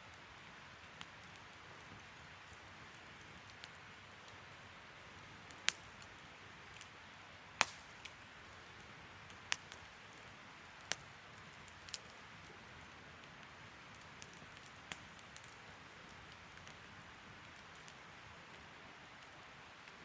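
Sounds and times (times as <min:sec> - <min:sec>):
bonfire crackling hiss: 0:00.0 - 0:20.0
sharp fire pops: 0:05.5 - 0:06.1, 0:07.6 - 0:08.4, 0:09.3 - 0:12.8, 0:13.8 - 0:19.4.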